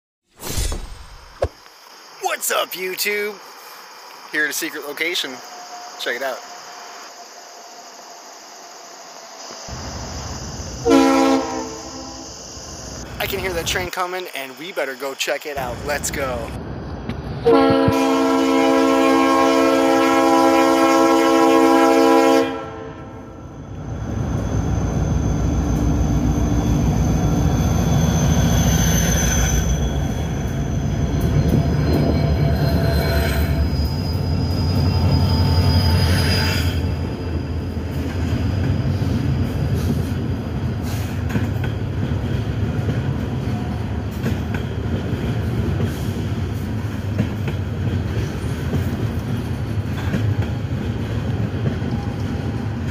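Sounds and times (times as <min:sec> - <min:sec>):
train horn blast: 0:10.8 - 0:12.3, 0:17.4 - 0:23.4
high-pitched wheel squeal: 0:23.9 - 0:39.2.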